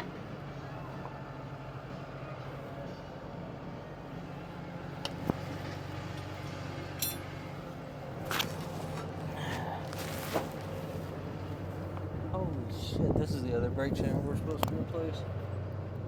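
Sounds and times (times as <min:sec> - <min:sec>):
low engine hum: 0:00.0 - 0:16.0
tools clinking on metal: 0:07.0 - 0:07.4.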